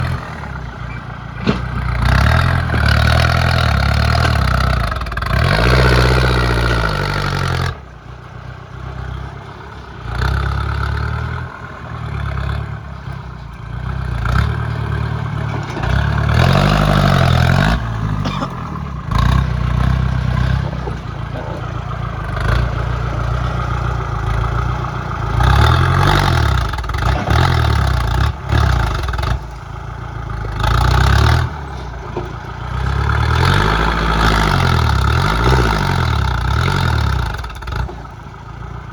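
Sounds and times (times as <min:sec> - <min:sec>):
tractor engine under load: 0:00.0 - 0:38.9
machinery clatter: 0:01.0 - 0:06.0, 0:14.1 - 0:24.7, 0:25.3 - 0:38.4.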